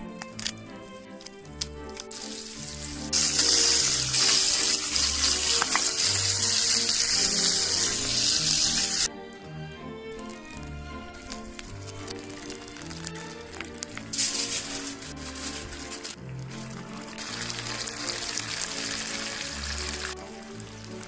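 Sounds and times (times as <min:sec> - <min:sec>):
background music: 0:00.0 - 0:21.0
food sizzling in a frying pan: 0:02.2 - 0:09.1, 0:14.1 - 0:15.0, 0:17.1 - 0:21.0.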